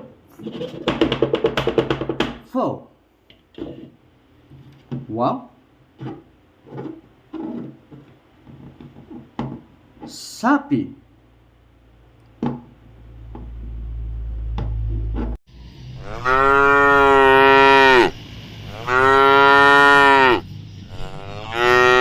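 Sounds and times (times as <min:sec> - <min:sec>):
low rumble: 0:13.1 - 0:16.5
cow mooing: 0:16.0 - 0:22.0.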